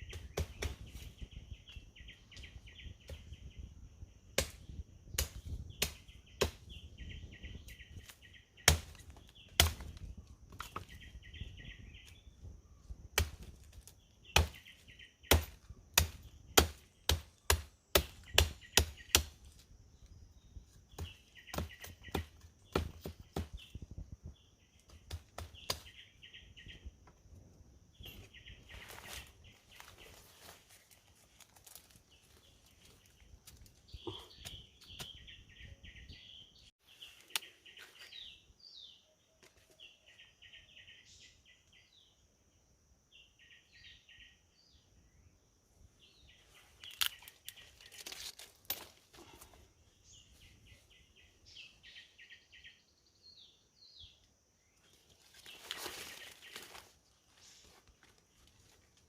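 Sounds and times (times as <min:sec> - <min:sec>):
rustling and crackling vegetation: 0:00.0 - 0:35.6, 0:46.0 - 0:52.0, 0:54.1 - 0:59.0.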